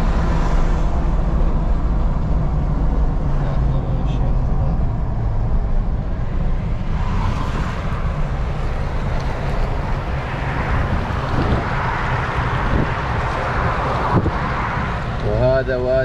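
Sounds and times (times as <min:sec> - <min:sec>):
wind buffeting microphone: 0:04.9 - 0:15.2.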